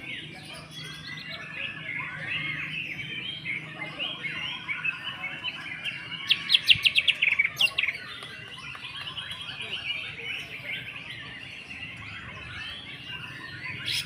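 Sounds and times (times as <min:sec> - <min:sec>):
bird singing varied warble: 0:00.0 - 0:14.0.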